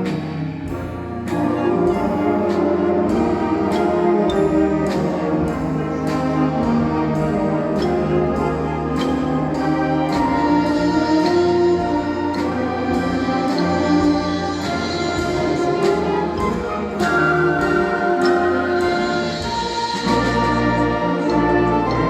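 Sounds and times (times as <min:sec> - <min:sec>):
brass and woodwind chords: 0:00.0 - 0:22.0
percussion strokes: 0:00.0 - 0:22.0.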